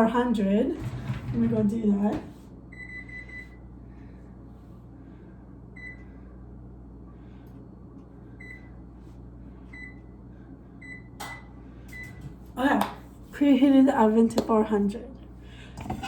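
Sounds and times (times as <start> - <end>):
low steady hum: 0.0 - 16.0
oven control panel beeps: 2.7 - 3.6, 5.8 - 6.1, 8.4 - 8.8, 9.7 - 10.1, 10.8 - 12.2.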